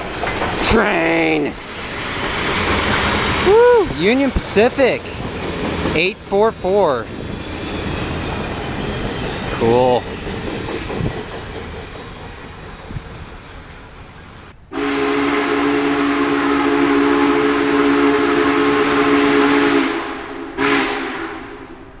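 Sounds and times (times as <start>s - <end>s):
steam locomotive passing: 0.0s - 22.0s
steam whistle blasts: 14.7s - 21.8s.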